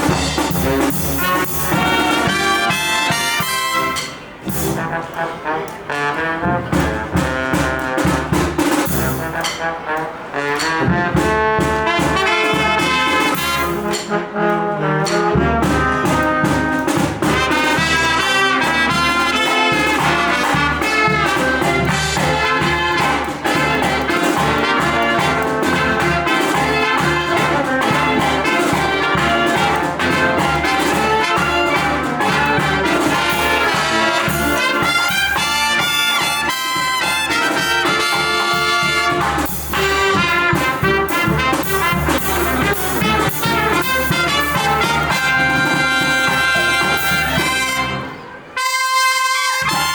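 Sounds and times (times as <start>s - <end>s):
brass band playing jazzy tune: 0.0s - 49.9s.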